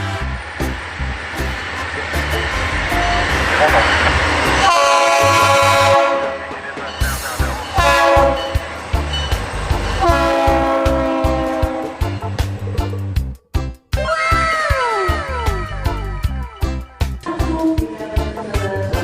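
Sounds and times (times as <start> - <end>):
train horn blasts: 0.0 - 0.6, 1.7 - 6.9, 7.5 - 12.3
rhythmic low pulsing: 0.0 - 14.1, 14.7 - 19.0.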